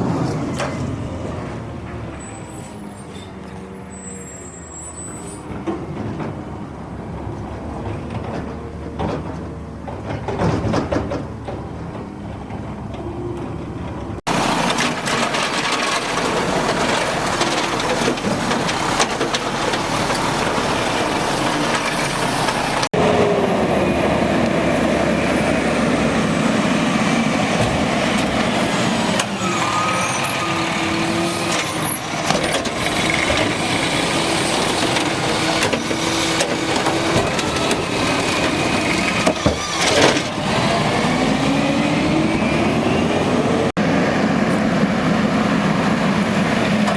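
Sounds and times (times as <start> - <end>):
garbage truck running: 0.0 - 46.9
rising and falling whines: 40.4 - 45.7.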